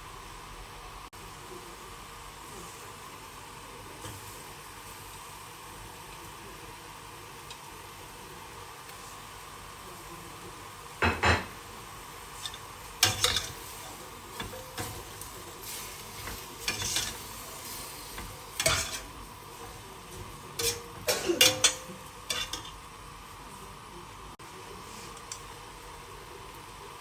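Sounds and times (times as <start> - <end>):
utensil scraping in a pan: 12.2 - 23.8, 24.8 - 25.6.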